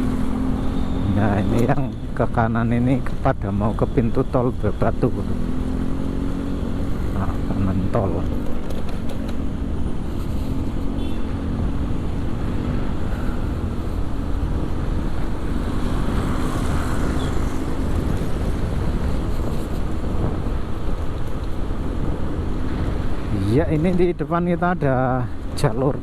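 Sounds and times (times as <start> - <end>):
motorcycle engine hum: 0.0 - 25.7
traffic: 0.0 - 26.0
wind rushing over microphone: 5.0 - 25.6.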